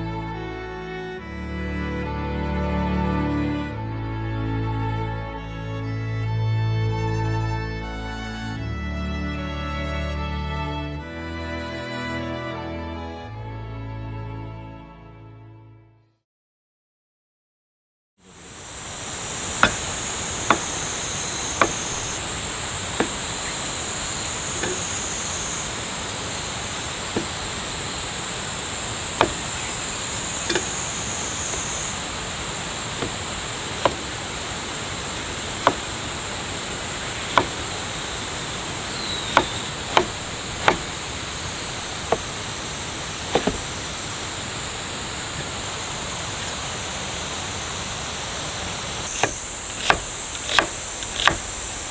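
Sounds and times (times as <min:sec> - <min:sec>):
outdoor noise hiss: 0:18.2 - 0:51.9
high insect chorus: 0:18.3 - 0:51.9
sharp single taps: 0:19.6 - 0:32.2, 0:32.8 - 0:42.4, 0:43.2 - 0:43.9.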